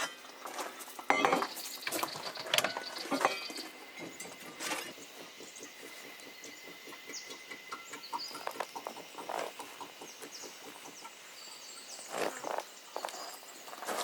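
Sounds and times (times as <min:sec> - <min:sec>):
rustling: 0:12.0 - 0:14.0.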